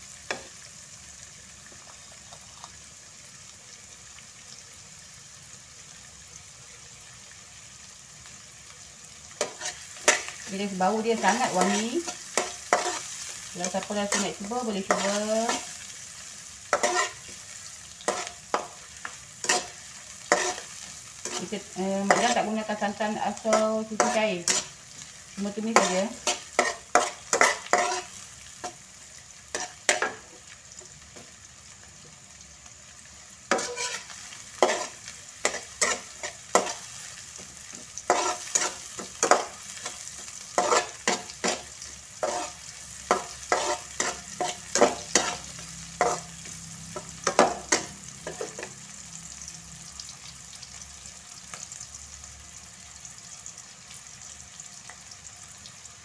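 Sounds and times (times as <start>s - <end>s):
food sizzling in hot oil: 0.0s - 56.0s
metal spatula scraping wok: 9.4s - 15.8s, 16.7s - 17.4s, 18.0s - 28.8s, 29.5s - 30.2s, 33.5s - 36.9s, 37.7s - 48.7s.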